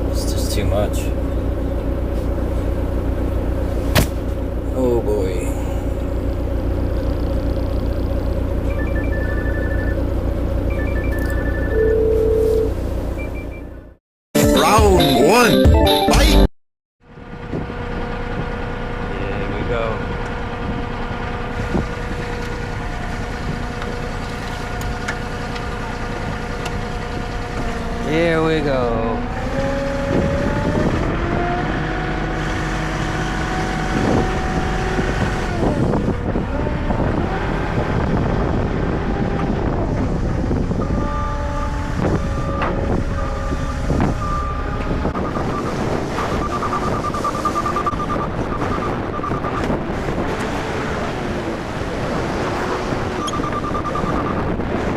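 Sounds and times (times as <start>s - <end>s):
diesel engine running: 0.0s - 14.0s, 17.0s - 54.9s
whining tones: 5.6s - 13.8s, 29.2s - 54.7s
reverse alarm beeping: 8.6s - 10.0s, 10.7s - 13.7s, 44.2s - 49.7s, 53.2s - 54.5s
wind buffeting microphone: 20.4s - 25.1s, 29.9s - 31.8s, 33.7s - 54.9s.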